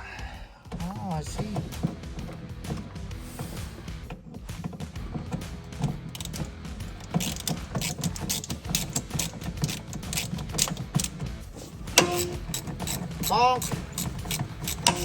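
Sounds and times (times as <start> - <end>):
ratchet wrench clicking: 5.2 - 15.0.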